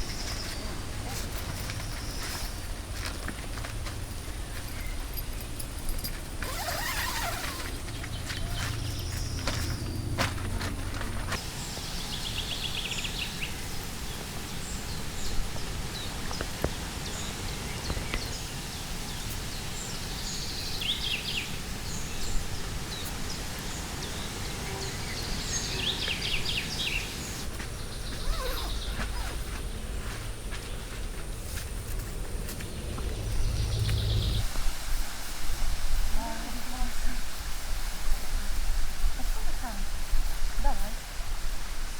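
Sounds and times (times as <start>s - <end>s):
outdoor background noise: 0.0s - 41.9s
low hum: 32.2s - 34.5s.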